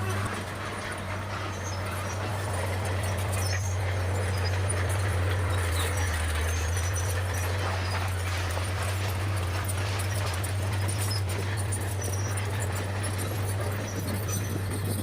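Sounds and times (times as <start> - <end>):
bulldozer diesel engine droning: 0.0 - 15.0.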